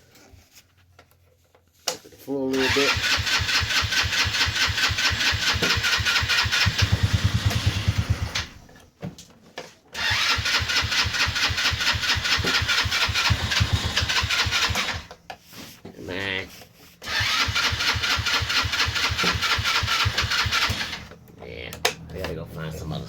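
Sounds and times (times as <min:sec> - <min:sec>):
electric starter cranking small engine: 0:02.5 - 0:08.7, 0:10.0 - 0:15.2, 0:17.0 - 0:21.2.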